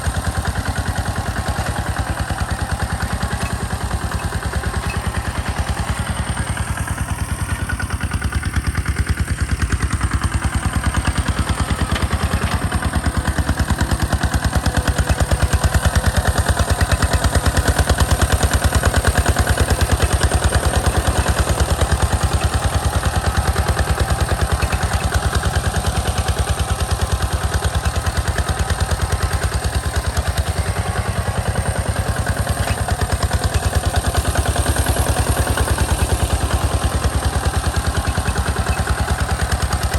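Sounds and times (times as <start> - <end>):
tractor engine chugging: 0.0 - 39.9.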